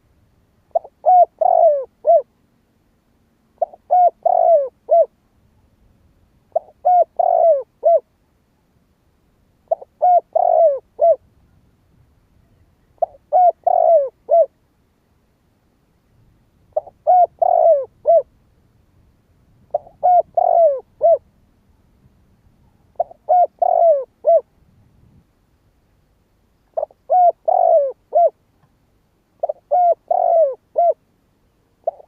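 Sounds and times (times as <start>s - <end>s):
dove cooing: 0.7s - 2.3s, 3.6s - 5.2s, 6.5s - 8.1s, 9.7s - 11.3s, 13.0s - 14.6s, 16.7s - 18.3s, 19.7s - 21.3s, 22.6s - 24.5s, 26.7s - 28.4s, 29.4s - 31.0s, 31.8s - 32.0s.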